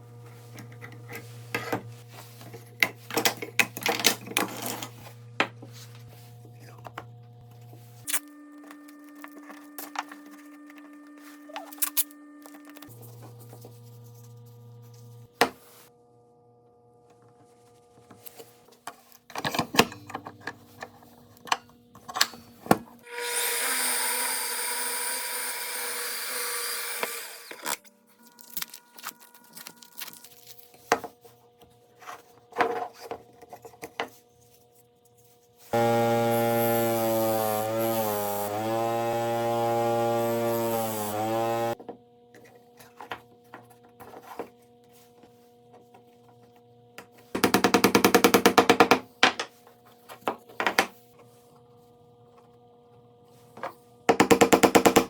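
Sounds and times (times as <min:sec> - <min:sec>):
power tool motor running: 0:23.1 - 0:27.8, 0:35.7 - 0:41.8.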